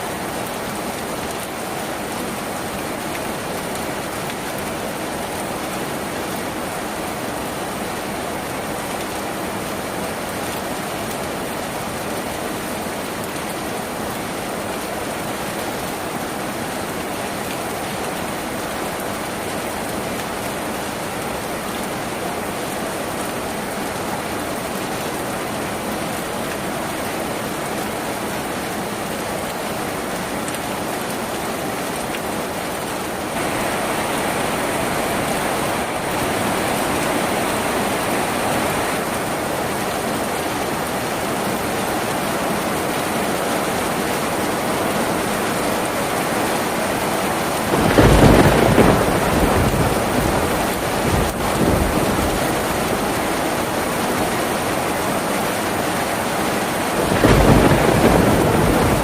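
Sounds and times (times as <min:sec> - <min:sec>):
rain on a tin roof: 0:00.0 - 0:59.0.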